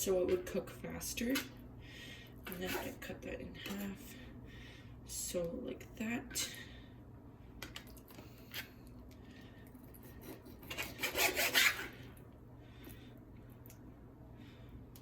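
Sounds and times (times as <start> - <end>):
knife sawing through meat: 10.0 - 12.0.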